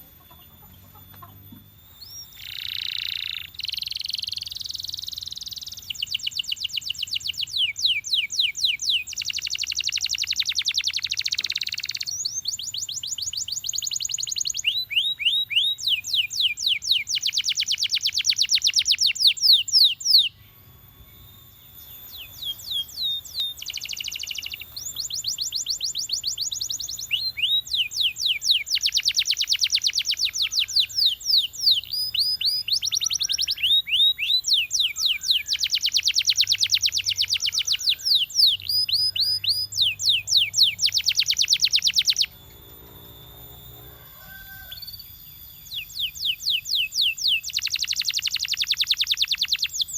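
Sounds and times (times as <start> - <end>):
canary trilling song: 0.0 - 49.9.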